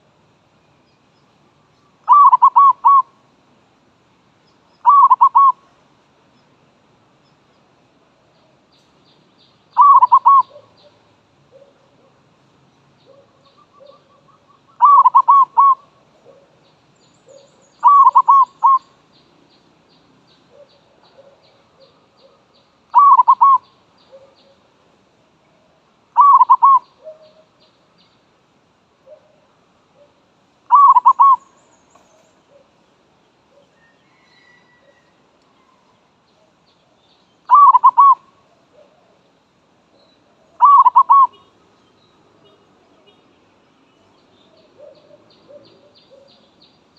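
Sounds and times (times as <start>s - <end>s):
dove cooing: 2.0s - 3.1s, 4.8s - 5.6s, 9.8s - 12.1s, 13.0s - 16.6s, 17.3s - 18.9s, 20.5s - 24.6s, 26.2s - 27.5s, 30.0s - 32.7s, 37.5s - 39.2s, 40.4s - 41.5s, 44.5s - 46.4s
small birds chirping: 4.3s - 28.4s, 29.0s - 46.9s.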